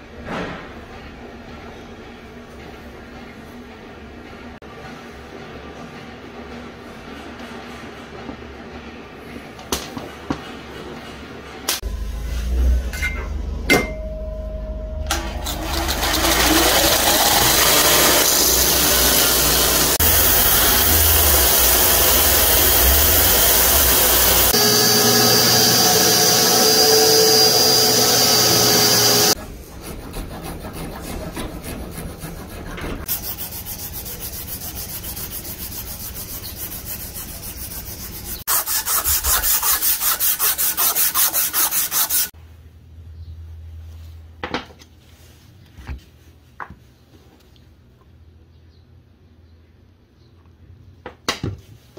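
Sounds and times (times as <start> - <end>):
belt sander grinding wood: 15.4 - 42.3
abrasive strip sanding wood: 16.0 - 42.3
rhythmic rubbing: 27.6 - 42.3.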